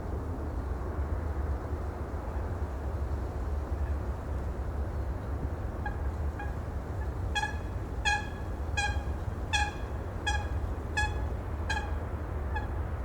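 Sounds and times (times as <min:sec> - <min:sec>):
bird calling: 0:06.4 - 0:12.7.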